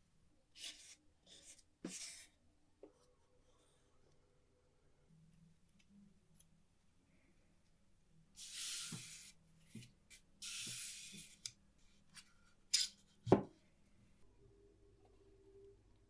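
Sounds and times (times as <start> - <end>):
faint steady hum: 13.6 - 16.0.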